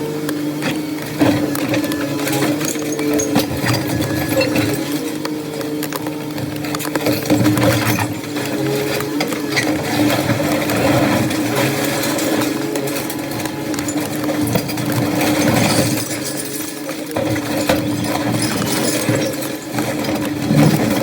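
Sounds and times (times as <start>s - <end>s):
demolition knocks and metallic clatter: 6.3s - 21.0s
machine engine humming: 20.3s - 21.0s.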